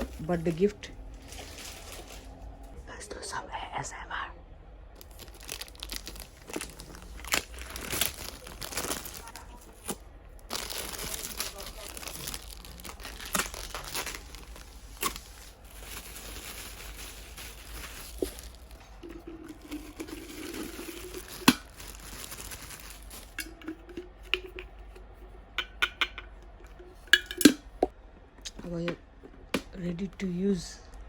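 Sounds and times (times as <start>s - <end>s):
plastic wrapping crinkling: 0.0s - 2.7s, 5.0s - 24.6s.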